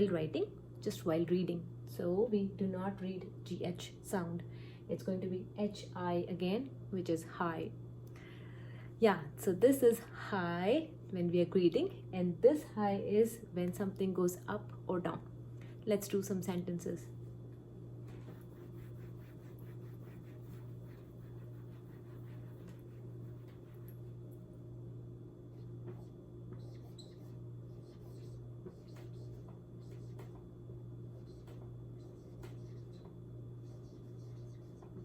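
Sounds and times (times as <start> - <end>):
pen scratching strokes: 18.2 - 23.9, 25.9 - 30.3, 31.2 - 35.0.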